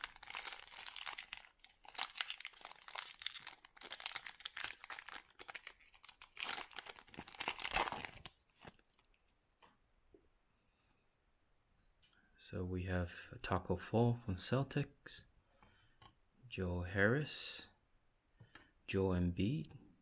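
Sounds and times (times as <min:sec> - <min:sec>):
wrapper tearing and crinkling: 0:00.0 - 0:09.1.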